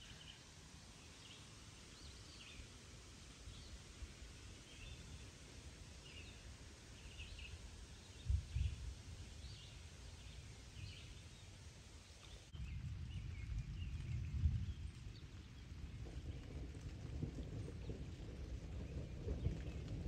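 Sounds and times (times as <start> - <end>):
wind rumble on microphone: 5.9 - 20.0
small birds chirping: 7.0 - 16.4.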